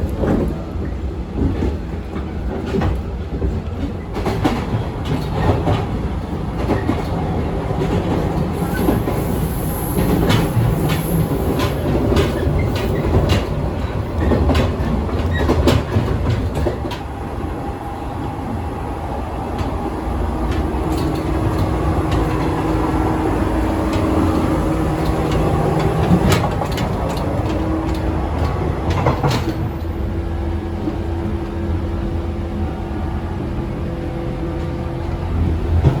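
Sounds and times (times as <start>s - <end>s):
wheels clicking over rail joints: 0.0s - 17.1s, 20.5s - 30.0s
train rumble: 0.0s - 36.0s.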